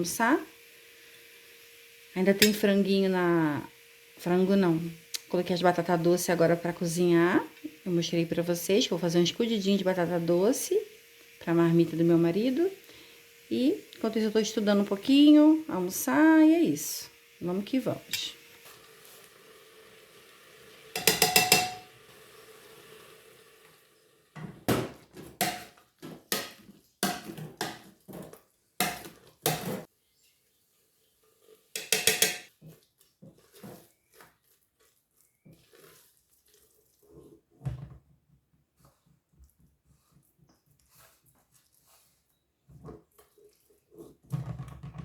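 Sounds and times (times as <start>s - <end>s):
faint running hiss: 0.0s - 24.4s
dishes and utensils clattering: 21.0s - 21.9s, 31.8s - 32.5s.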